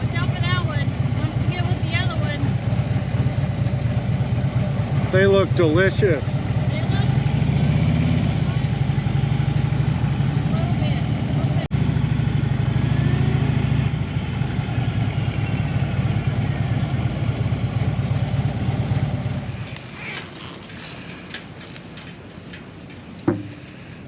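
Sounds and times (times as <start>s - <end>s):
vehicle engine idling: 0.0s - 24.0s
sharp thump: 23.2s - 23.6s.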